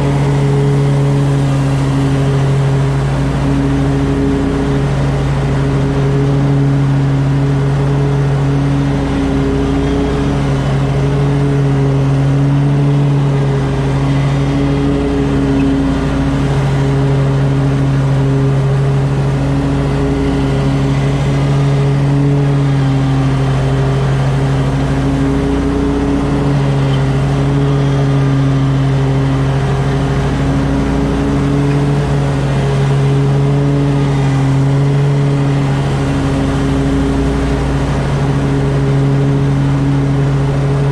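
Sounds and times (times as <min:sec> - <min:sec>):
mower engine running: 0:00.0 - 0:40.9.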